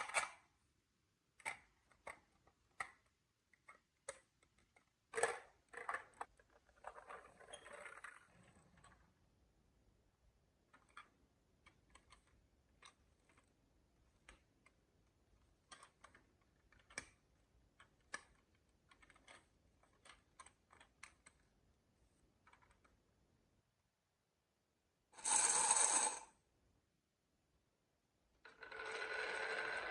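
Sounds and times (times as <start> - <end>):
marbles clicking on wooden run: 25.2 - 26.3, 28.5 - 29.9.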